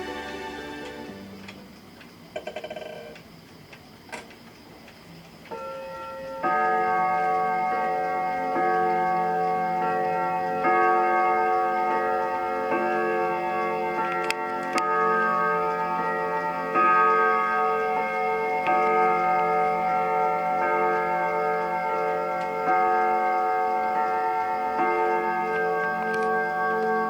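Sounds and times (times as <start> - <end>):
wall clock striking gongs: 5.5 - 27.0.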